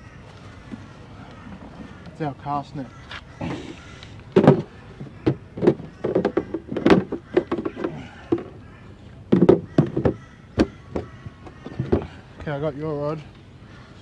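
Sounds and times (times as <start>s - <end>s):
fishing gear knocking and clunking: 3.4s - 12.6s.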